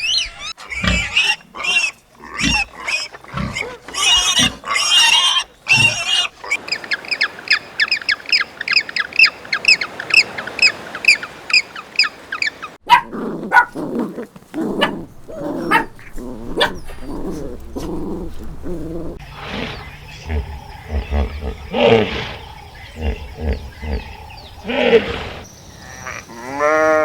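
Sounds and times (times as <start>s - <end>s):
harsh animal cries: 0.0s - 6.6s.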